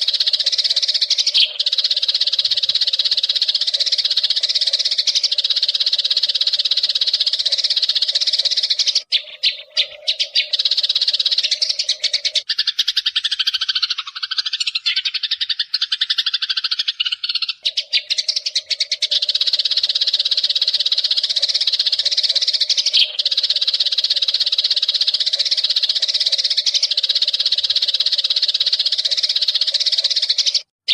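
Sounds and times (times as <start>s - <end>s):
sparrows chirping: 0.0s - 30.9s.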